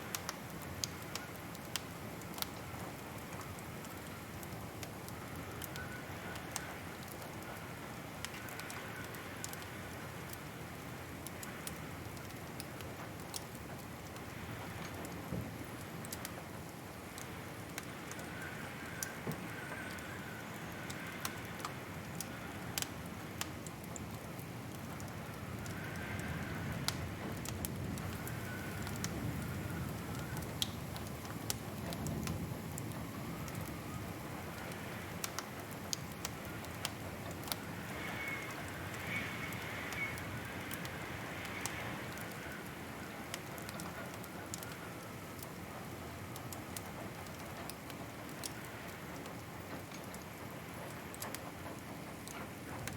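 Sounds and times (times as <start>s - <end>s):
wood fire crackling: 0.0s - 52.9s
faint wavering whistle: 37.9s - 40.3s.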